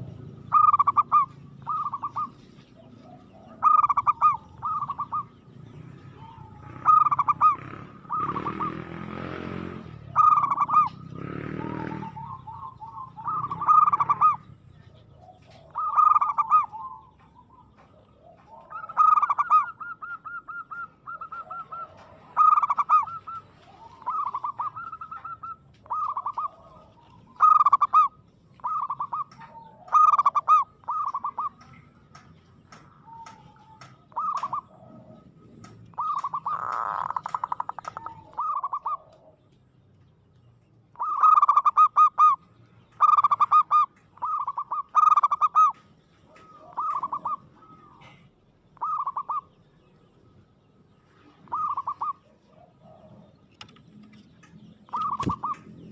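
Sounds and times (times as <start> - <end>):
dove cooing: 0.0 - 39.7, 40.9 - 49.9, 51.0 - 55.9.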